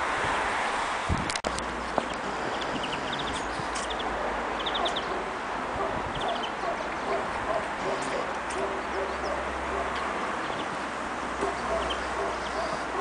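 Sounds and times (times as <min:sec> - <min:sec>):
high bird chirps: 0:02.1 - 0:05.2, 0:11.5 - 0:12.9.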